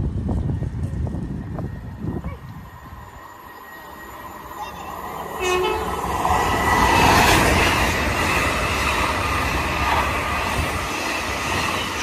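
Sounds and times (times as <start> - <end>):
train rushing past: 0.0 - 12.0.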